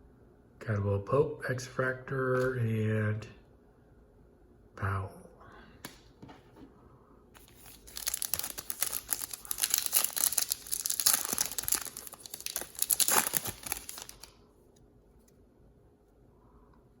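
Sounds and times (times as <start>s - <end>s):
foil wrapper tearing and crinkling: 7.4s - 14.4s.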